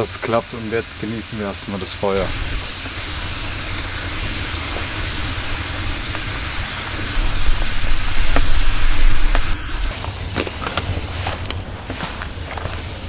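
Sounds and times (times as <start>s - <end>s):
campfire hissing and crackling: 0.0s - 13.0s
loud low rumble: 2.2s - 10.0s.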